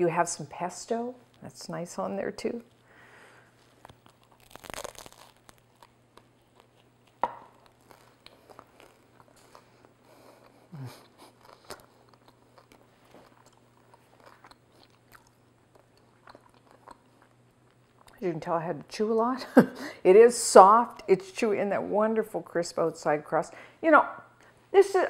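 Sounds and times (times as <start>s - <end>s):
bread crust crunch: 3.5s - 18.1s
chewing crackles: 3.5s - 18.2s.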